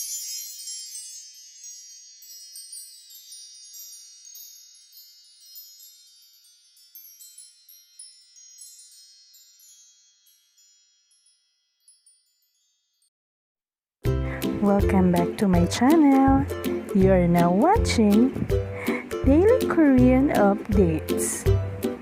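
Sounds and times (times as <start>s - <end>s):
high bright chimes ringing: 0.0s - 13.1s.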